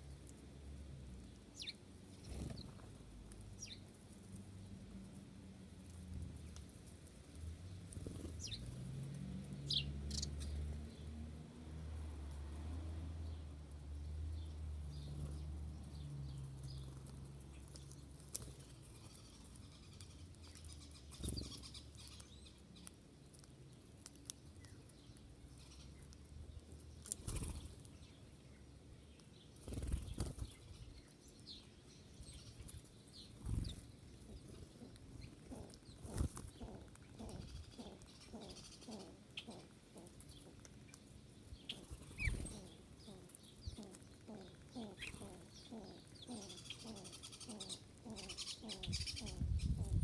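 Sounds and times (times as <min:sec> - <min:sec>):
bird wings flapping: 0:36.0 - 0:36.5.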